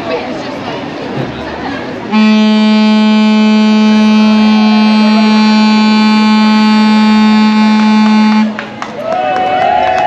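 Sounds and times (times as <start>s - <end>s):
ship's horn blast: 2.1s - 8.6s.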